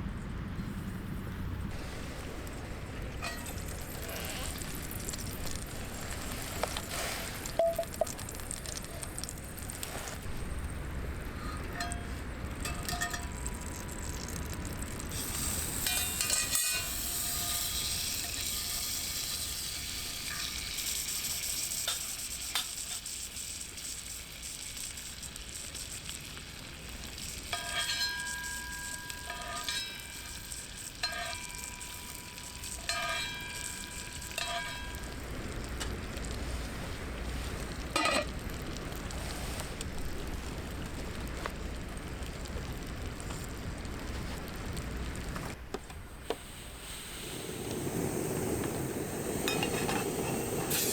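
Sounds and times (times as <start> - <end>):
food sizzling in a pan: 1.7 - 50.9
metal utensil clinking on cookware: 3.2 - 6.9, 7.6 - 8.2, 11.6 - 13.7, 15.2 - 23.0, 27.5 - 35.2, 38.0 - 38.3.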